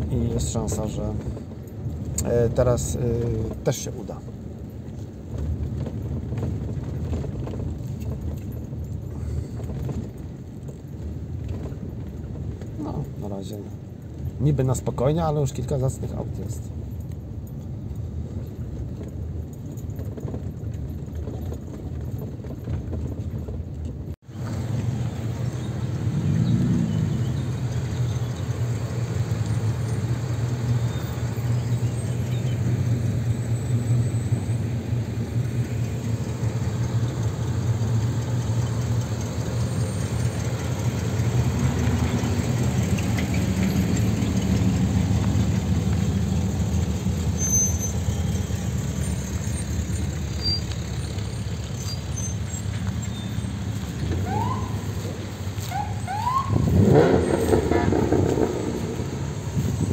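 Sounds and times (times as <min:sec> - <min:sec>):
car engine running: 0:16.4 - 0:59.9
short rising squeaks: 0:46.8 - 0:59.9.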